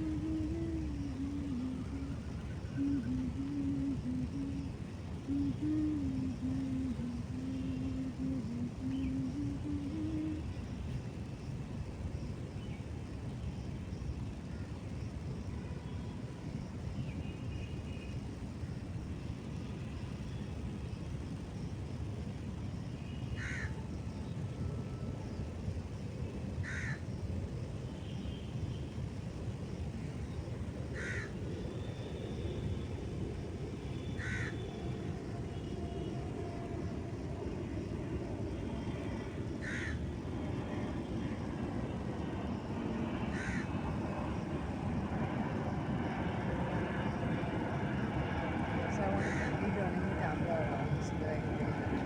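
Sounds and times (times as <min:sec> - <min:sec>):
low background rumble: 0:00.0 - 0:22.9, 0:25.2 - 0:52.0
crow cawing: 0:23.4 - 0:23.7, 0:26.6 - 0:27.0, 0:31.0 - 0:31.3, 0:34.2 - 0:34.6, 0:39.6 - 0:40.0, 0:43.3 - 0:43.7, 0:49.2 - 0:49.6.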